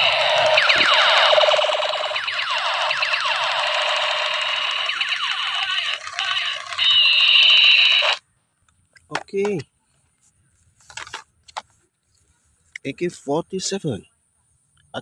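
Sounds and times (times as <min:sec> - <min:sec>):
toy gun electronic siren effect: 0:00.0 - 0:08.2.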